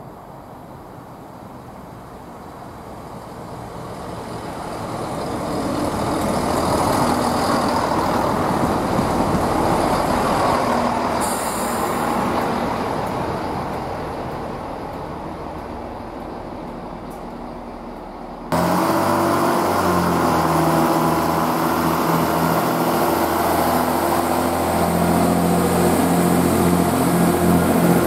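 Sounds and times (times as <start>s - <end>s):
diesel train engines: 0.0s - 28.0s
wheels rumbling on rail: 0.0s - 28.0s.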